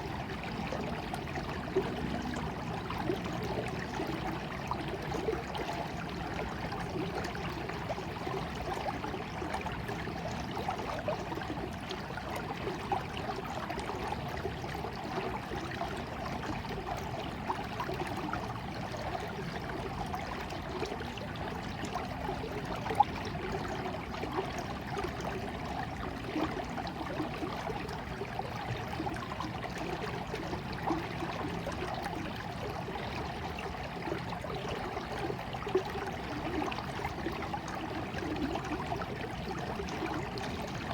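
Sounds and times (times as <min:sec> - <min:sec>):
stream water trickling: 0:00.0 - 0:40.9.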